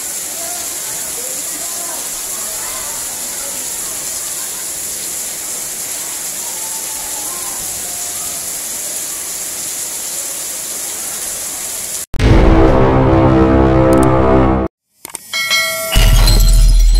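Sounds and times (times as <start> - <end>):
heavy rain on paving: 0.0 - 12.1.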